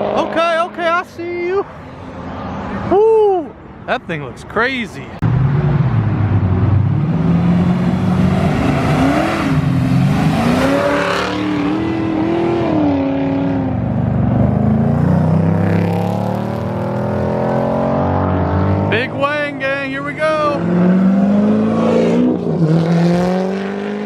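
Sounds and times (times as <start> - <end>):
exhaust noise rush: 0.0 - 24.0
car engine revving hard: 5.3 - 19.2, 20.4 - 24.0.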